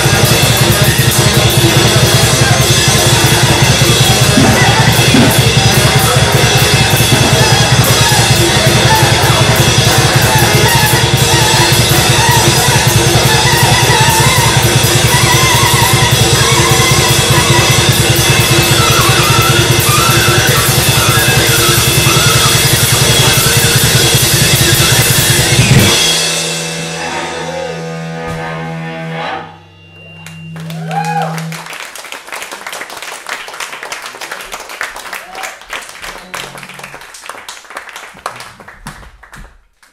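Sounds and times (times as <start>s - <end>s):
tenor saxophone: 0.0s - 26.0s, 36.0s - 37.2s
drum kit with cymbals: 0.0s - 28.6s.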